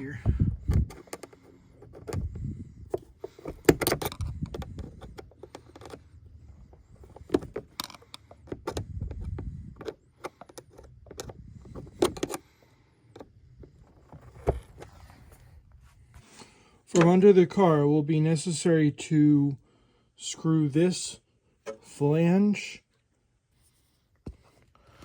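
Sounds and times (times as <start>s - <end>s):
hand tools and metal parts clinking: 2.9s - 12.4s.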